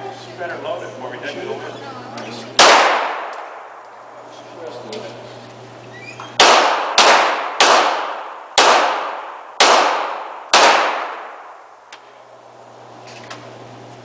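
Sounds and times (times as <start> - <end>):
handgun shots echoing: 2.6 - 3.9, 6.4 - 11.7.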